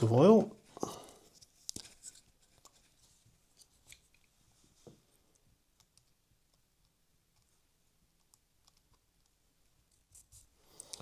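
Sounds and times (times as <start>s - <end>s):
faint clicks of tools handled: 10.7s - 11.0s.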